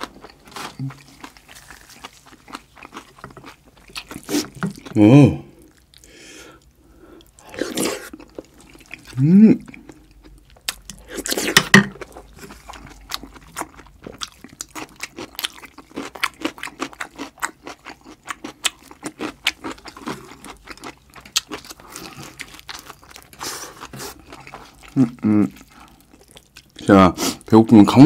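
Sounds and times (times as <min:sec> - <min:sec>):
close chewing: 0:00.0 - 0:05.0, 0:05.6 - 0:27.6.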